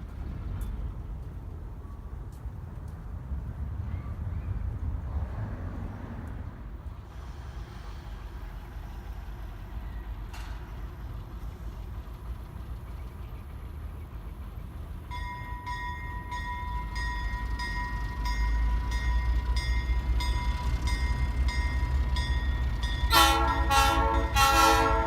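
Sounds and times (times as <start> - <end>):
diesel locomotive rumbling: 0.0 - 25.0
locomotive bell ringing: 15.0 - 25.0
loud horn blast: 23.1 - 25.0.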